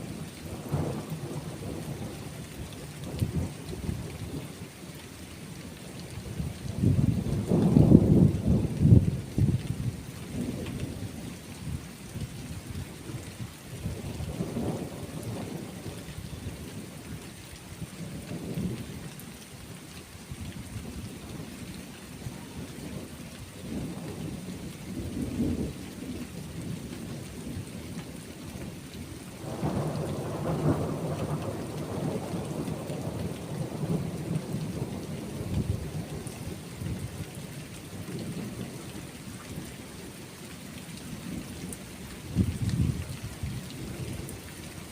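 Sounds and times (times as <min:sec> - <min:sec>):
steady rain: 0:00.0 - 0:44.9
rolling thunder: 0:06.7 - 0:10.6, 0:29.4 - 0:36.2.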